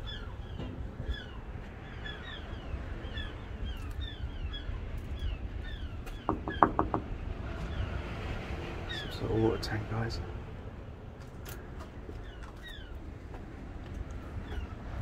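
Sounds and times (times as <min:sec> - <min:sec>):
small birds chirping: 0:00.0 - 0:08.0, 0:12.1 - 0:13.1.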